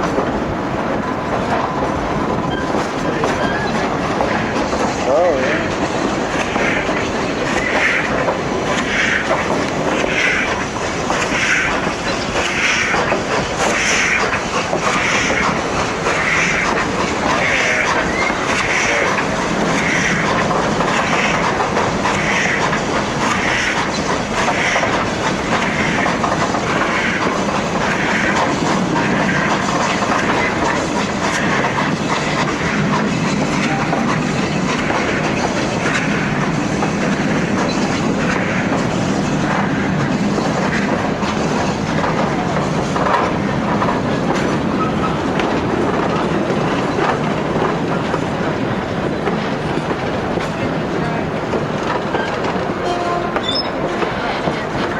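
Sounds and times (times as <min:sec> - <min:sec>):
train rumbling on track: 0:00.0 - 0:54.9.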